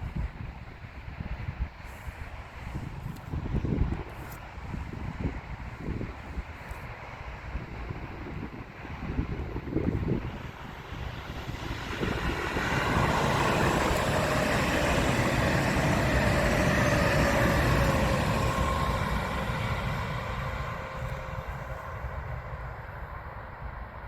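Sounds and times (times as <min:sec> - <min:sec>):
wind on microphone: 0:00.0 - 0:24.0
train passing: 0:07.3 - 0:24.0.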